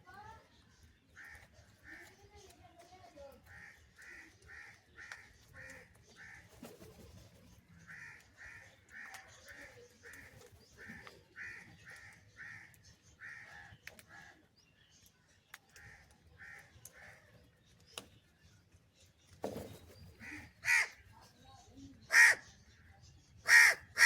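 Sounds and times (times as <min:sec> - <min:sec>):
crow cawing: 0:10.9 - 0:14.4, 0:20.2 - 0:21.0, 0:22.1 - 0:22.4, 0:23.5 - 0:24.0.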